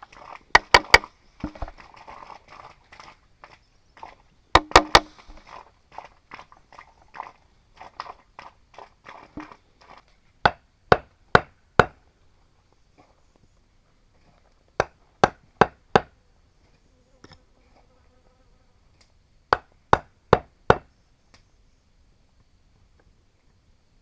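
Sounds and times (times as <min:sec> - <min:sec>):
tool striking bamboo: 0:00.6 - 0:01.8, 0:04.6 - 0:05.5, 0:10.5 - 0:12.0, 0:14.8 - 0:16.1, 0:19.5 - 0:20.9.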